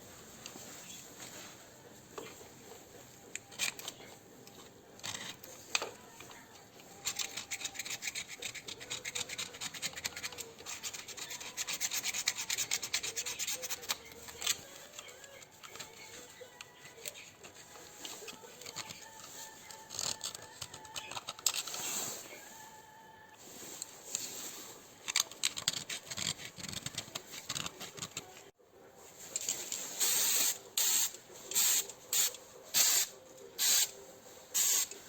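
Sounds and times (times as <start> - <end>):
hand rasping on a part: 7.0 - 16.0.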